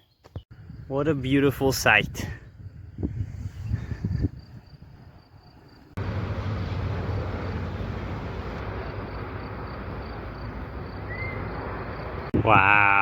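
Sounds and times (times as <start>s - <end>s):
steady rushing outdoor noise: 5.8s - 12.6s.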